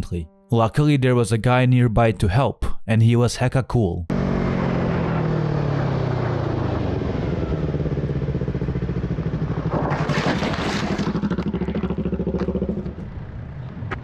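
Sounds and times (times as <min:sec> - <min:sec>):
motorcycle engine chugging: 0:04.1 - 0:13.6.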